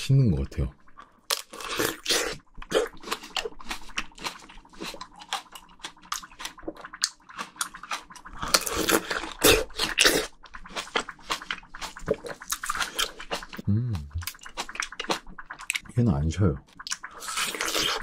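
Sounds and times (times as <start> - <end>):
wet chewing of fruit: 1.0 - 15.8, 16.6 - 18.0.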